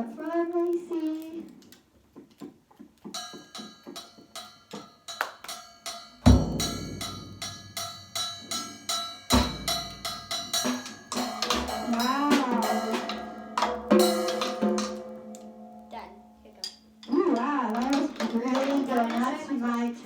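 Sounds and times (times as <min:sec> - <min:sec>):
drum kit playing: 0:03.1 - 0:16.0
cymbals ringing: 0:03.2 - 0:17.2.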